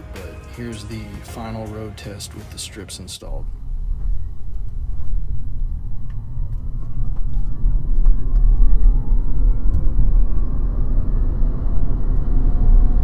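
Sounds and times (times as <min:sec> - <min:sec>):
faint rising whine: 0:03.3 - 0:13.0
road and wind rumble in cabin: 0:03.3 - 0:13.0.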